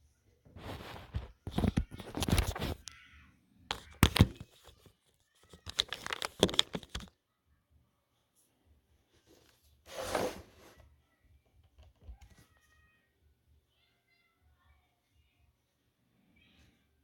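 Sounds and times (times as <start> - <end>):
scraping and rustling of plastic: 0.5 - 2.9.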